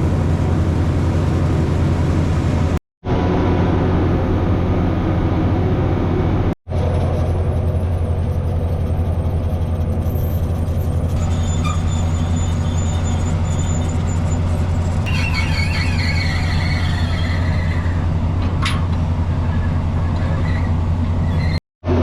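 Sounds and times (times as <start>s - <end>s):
boat diesel engine droning: 0.0s - 22.0s
high squeal sliding down: 10.0s - 18.1s.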